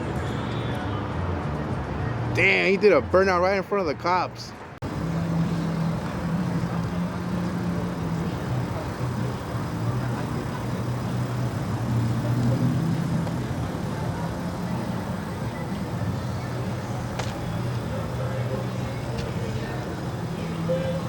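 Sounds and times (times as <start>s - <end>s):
outdoor background noise: 0.0s - 21.0s
car engine running at low revs: 4.8s - 21.0s.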